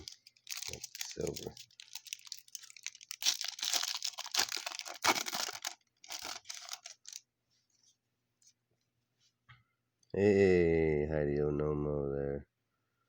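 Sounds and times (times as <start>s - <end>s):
card pack wrapper crinkling: 0.0s - 7.2s.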